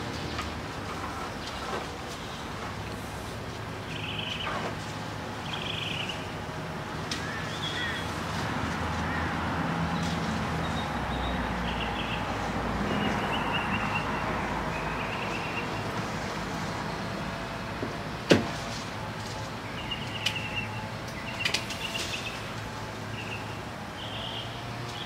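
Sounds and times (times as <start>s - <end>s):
steady outdoor hum: 0.0s - 25.0s
birds chirping: 3.8s - 4.6s, 7.2s - 8.2s, 10.0s - 15.9s, 19.5s - 22.5s, 23.1s - 25.0s.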